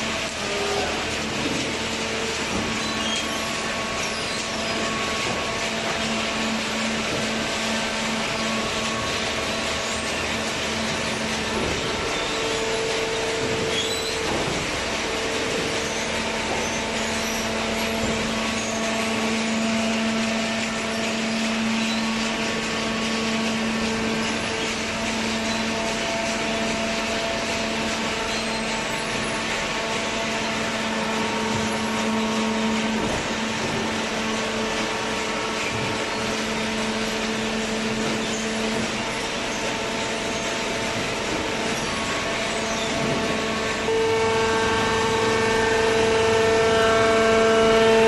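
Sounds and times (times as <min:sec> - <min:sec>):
hydraulic baler machine drone: 0:00.0 - 0:48.0
humming tone: 0:41.6 - 0:48.0.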